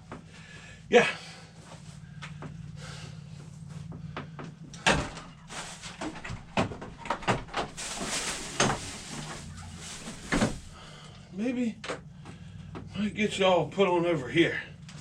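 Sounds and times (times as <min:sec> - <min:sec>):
low steady hum: 0:00.0 - 0:15.0
rustling: 0:05.2 - 0:11.0.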